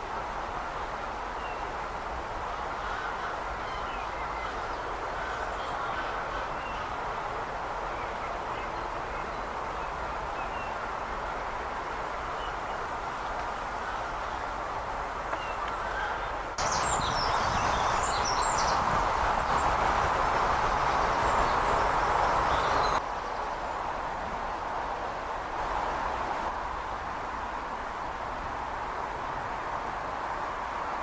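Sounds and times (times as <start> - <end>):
outdoor background noise: 0.0 - 31.0
bird chirps: 16.6 - 19.7.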